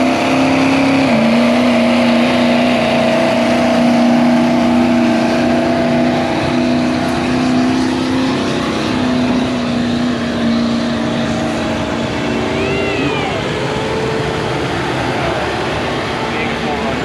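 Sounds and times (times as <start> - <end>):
tractor engine droning under load: 11.4 - 16.3.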